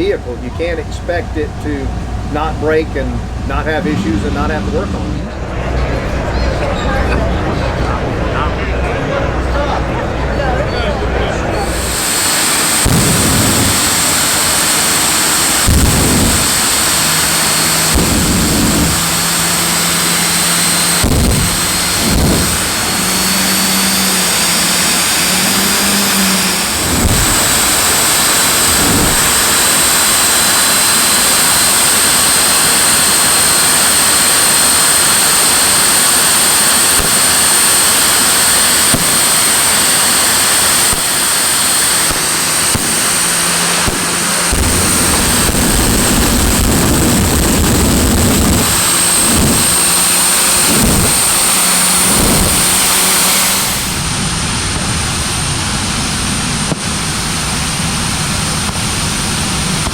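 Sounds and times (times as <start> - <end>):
low thuds: 0.0 - 6.4, 11.6 - 14.7, 21.0 - 24.1
jet engine roaring with whine: 0.0 - 59.9.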